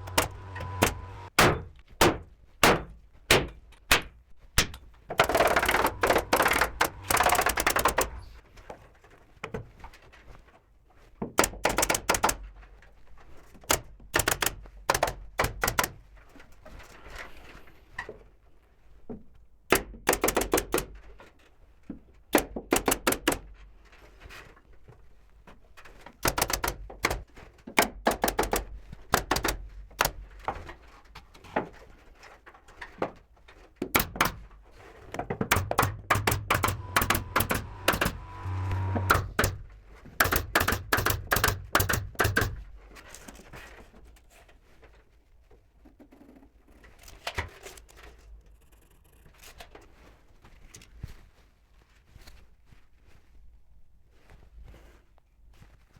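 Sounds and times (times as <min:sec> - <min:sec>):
clicks and knocks on wooden boards: 0:00.0 - 0:08.2, 0:11.2 - 0:12.7, 0:13.5 - 0:16.2, 0:19.7 - 0:23.7, 0:26.1 - 0:43.8.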